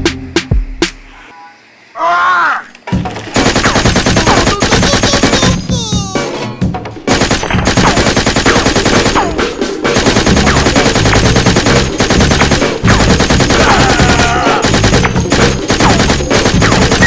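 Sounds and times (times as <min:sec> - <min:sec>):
automatic gunfire: 0:03.3 - 0:05.6, 0:07.1 - 0:17.0.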